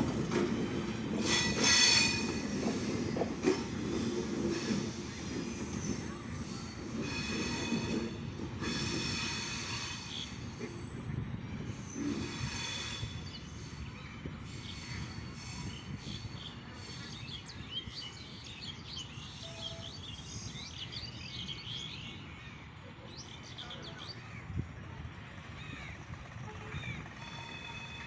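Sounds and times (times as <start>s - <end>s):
train coaches rumbling: 0.0s - 28.0s
birds chirping: 0.1s - 24.3s
high wheel squeal: 1.2s - 11.0s, 11.7s - 13.8s.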